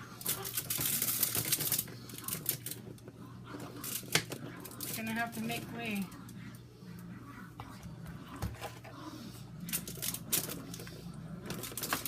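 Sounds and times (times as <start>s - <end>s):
aluminium foil crinkling: 0.0s - 3.0s, 3.7s - 6.1s, 9.7s - 10.9s, 11.5s - 12.0s.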